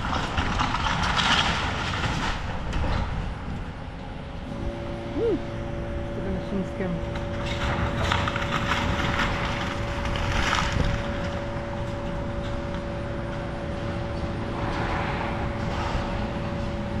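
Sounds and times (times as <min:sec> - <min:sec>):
wood crunching and splintering: 0:00.0 - 0:03.2, 0:07.1 - 0:13.0
excavator engine whining: 0:03.8 - 0:17.0.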